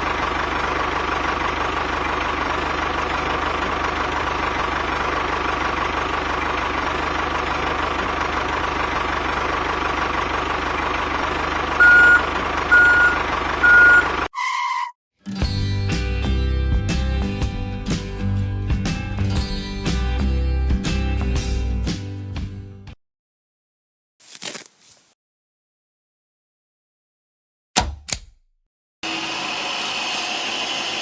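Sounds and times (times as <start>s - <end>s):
reversing alarm beeping: 11.8s - 14.1s.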